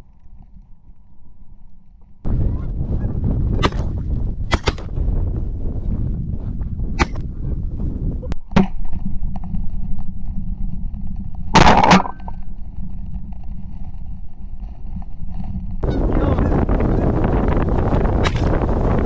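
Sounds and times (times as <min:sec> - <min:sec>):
steady low rumble: 0:00.0 - 0:19.0
shotgun shots: 0:03.6 - 0:03.9, 0:04.5 - 0:04.9, 0:07.0 - 0:07.2.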